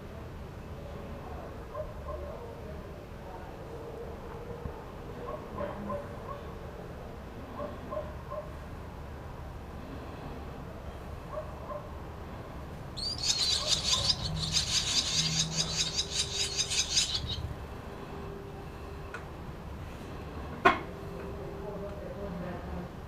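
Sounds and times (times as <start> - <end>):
swallows twittering: 13.0 - 17.5.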